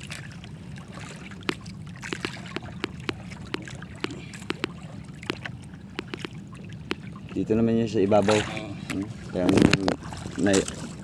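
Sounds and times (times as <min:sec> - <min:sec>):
boat engine idling: 0:00.0 - 0:11.0
sharp clicks and taps: 0:01.4 - 0:07.0.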